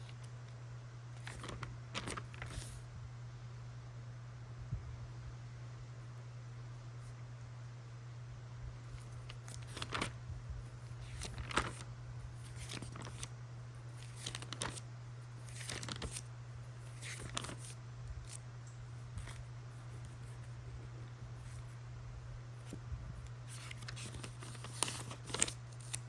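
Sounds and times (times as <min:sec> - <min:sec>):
steady low hum: 0:00.0 - 0:26.0
paper pages rustling: 0:01.2 - 0:02.8, 0:08.9 - 0:10.2, 0:10.9 - 0:13.3, 0:14.0 - 0:14.8, 0:15.4 - 0:18.4, 0:19.1 - 0:20.5, 0:22.7 - 0:26.0.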